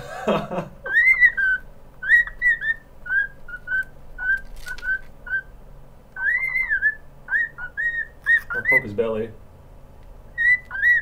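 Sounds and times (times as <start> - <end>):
cockatiel whistling: 0.9 - 5.5, 6.2 - 9.0, 10.3 - 11.0.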